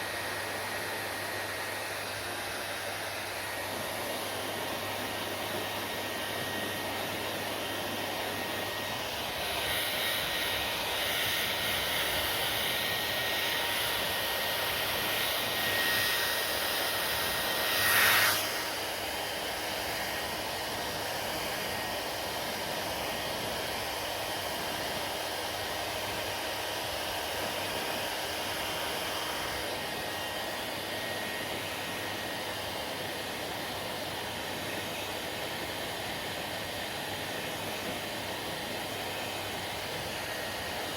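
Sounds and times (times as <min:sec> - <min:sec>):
hair dryer blowing: 0:00.0 - 0:40.9.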